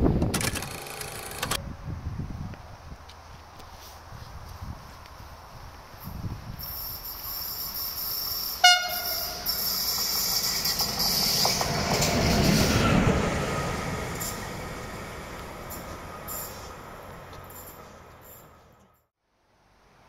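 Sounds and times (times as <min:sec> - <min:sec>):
locomotive and wheels on rails: 0:00.0 - 0:19.1
train horn blast: 0:08.6 - 0:09.7.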